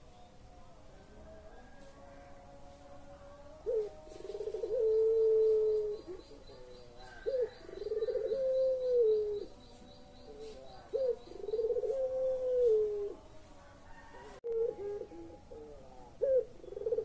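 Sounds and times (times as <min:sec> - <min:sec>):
dove cooing: 0:03.4 - 0:13.3, 0:13.9 - 0:17.0.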